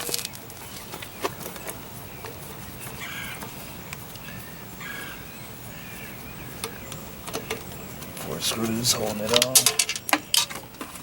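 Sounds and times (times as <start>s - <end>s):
bird calling: 0.0s - 11.0s
low background noise: 0.0s - 11.0s.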